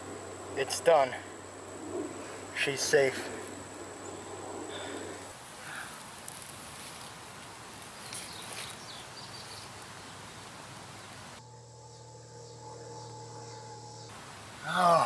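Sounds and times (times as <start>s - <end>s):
steady background hiss: 0.0s - 15.0s
faint rustling: 4.7s - 11.4s
chirps: 8.1s - 14.2s.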